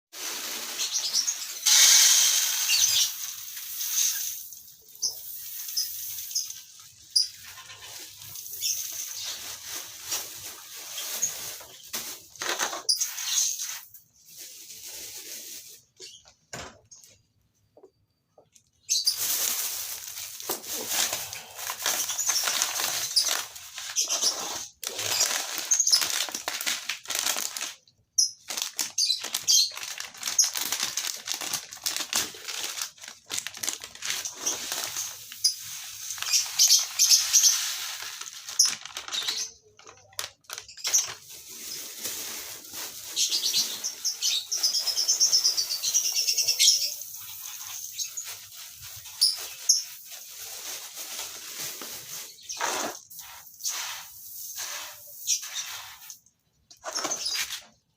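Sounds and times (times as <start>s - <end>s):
lovebirds chattering: 43.2s - 48.3s.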